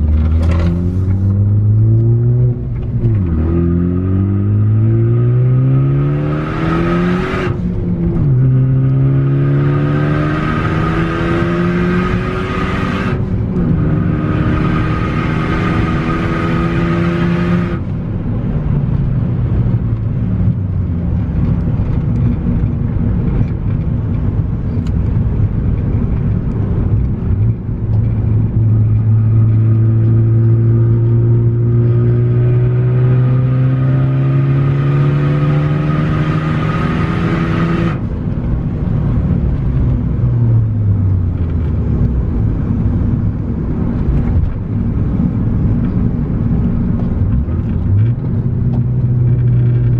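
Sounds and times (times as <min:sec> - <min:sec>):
turbocharged car engine revving: 0:00.0 - 0:17.8, 0:28.6 - 0:38.0.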